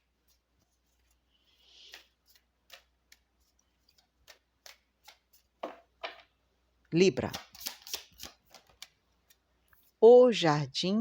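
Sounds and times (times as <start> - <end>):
card deck being shuffled: 7.2 - 8.9.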